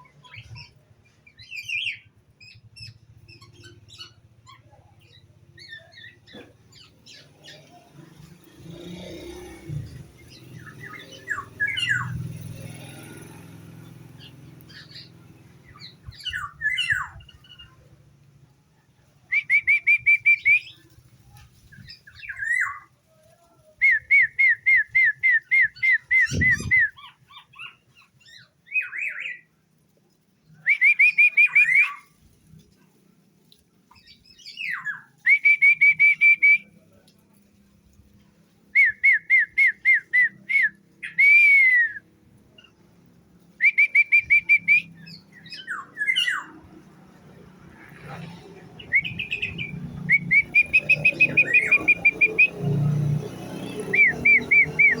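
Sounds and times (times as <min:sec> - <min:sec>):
songbird calling: 0:25.8 - 0:27.0, 0:48.8 - 0:52.6, 0:53.7 - 0:55.0.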